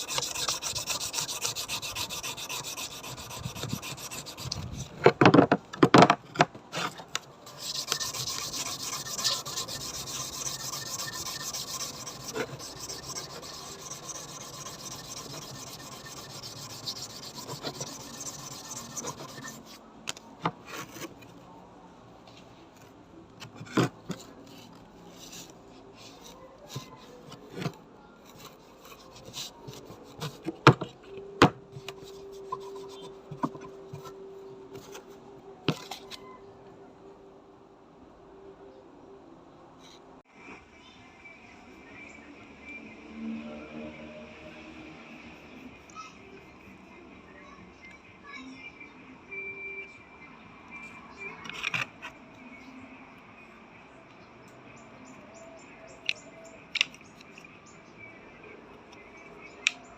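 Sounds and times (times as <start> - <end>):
filing scrape on metal scabbard: 0.0 - 5.0, 6.7 - 19.8.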